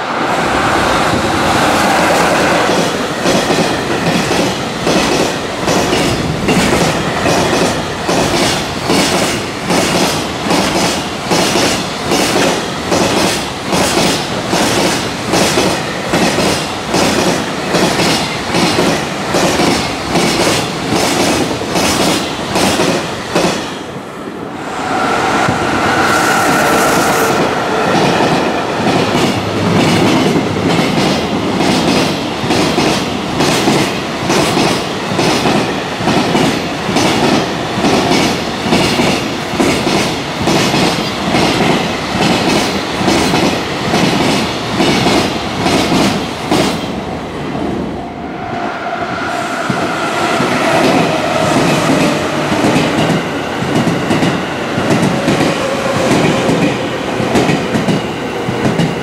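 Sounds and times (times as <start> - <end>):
electric train whine: 0.0 - 32.1, 34.2 - 59.0
freight train wheels clattering: 1.0 - 23.8.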